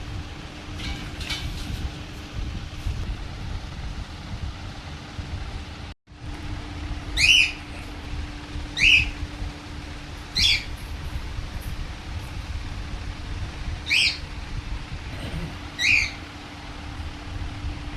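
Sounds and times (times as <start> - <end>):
steady low rumble: 0.0 - 17.9
parrot high-pitched calls: 7.1 - 8.0, 8.8 - 9.3, 10.3 - 10.9, 13.8 - 14.3, 15.6 - 16.4.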